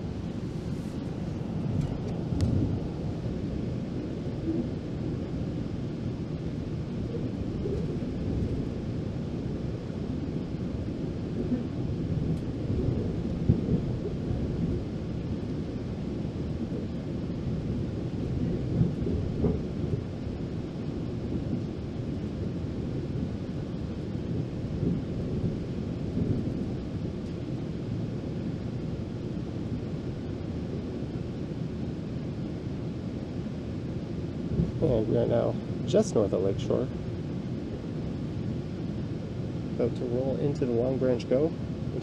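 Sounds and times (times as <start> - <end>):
train rumbling inside coach: 0.0 - 3.2.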